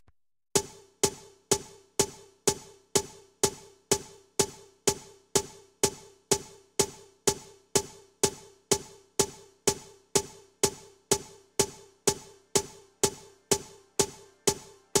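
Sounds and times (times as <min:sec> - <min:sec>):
repeating electronic percussive note: 0:11.6 - 0:15.0.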